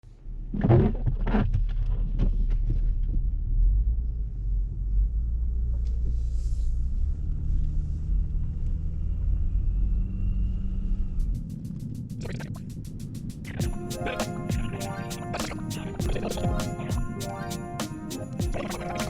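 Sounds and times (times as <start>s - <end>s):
car engine rumble: 2.3s - 13.6s.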